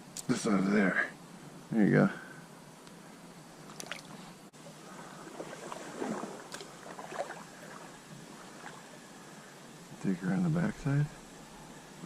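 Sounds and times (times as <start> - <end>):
water splashing and sloshing: 3.7 - 9.4.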